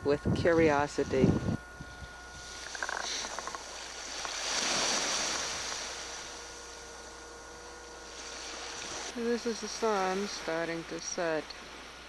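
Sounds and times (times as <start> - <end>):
wave washing in: 2.4 - 12.0.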